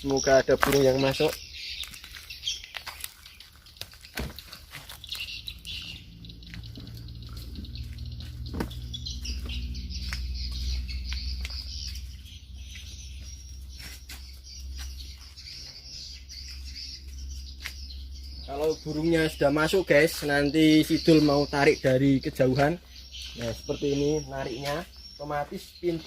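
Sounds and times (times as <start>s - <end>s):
birds chirping: 0.0s - 26.0s
steady low rumble: 5.4s - 23.2s.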